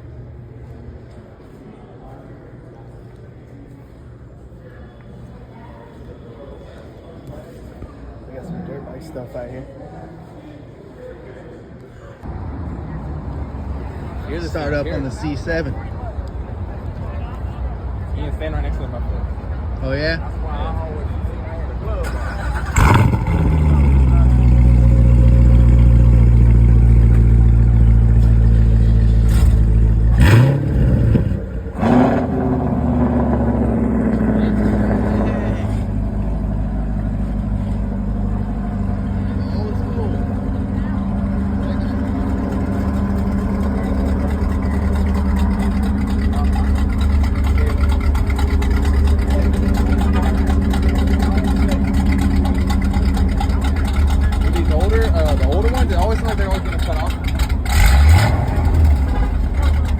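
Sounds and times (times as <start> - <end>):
car engine idling and revving: 12.2 - 59.9.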